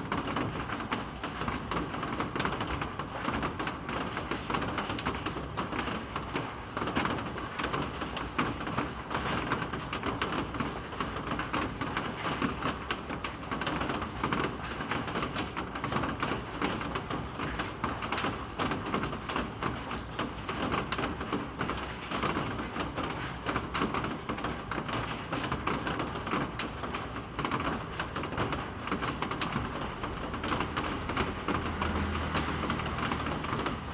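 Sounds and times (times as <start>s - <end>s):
rain on a hard surface: 0.0s - 33.9s.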